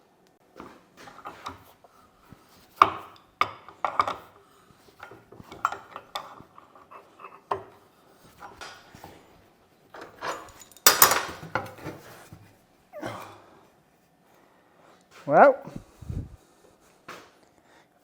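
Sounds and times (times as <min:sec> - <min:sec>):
metal tools clinking on workbench: 0:10.0 - 0:11.9.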